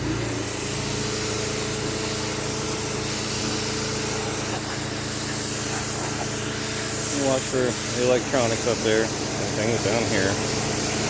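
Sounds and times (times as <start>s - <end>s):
motor hum: 0.0s - 11.0s
water spraying from hose nozzle: 0.0s - 11.0s.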